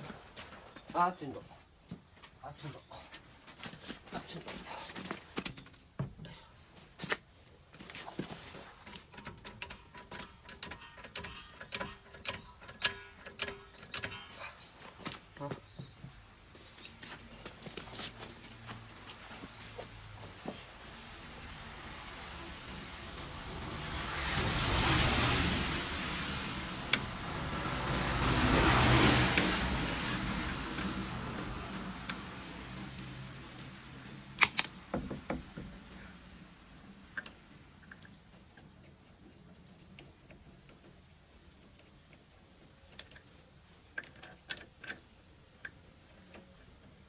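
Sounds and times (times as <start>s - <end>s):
vehicle passing: 18.4s - 34.4s
car jack metallic clicks: 34.4s - 34.8s.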